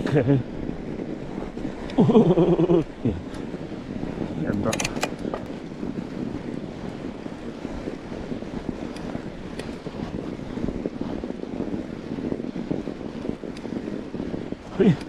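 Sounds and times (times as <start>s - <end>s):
wind buffeting microphone: 0.0s - 15.0s
faint ticks: 8.9s - 9.8s, 13.5s - 13.8s.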